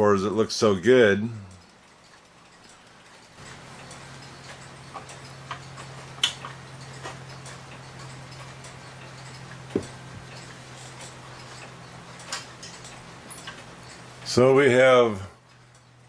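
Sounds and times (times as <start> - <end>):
mantel clock ticking: 1.6 - 16.0.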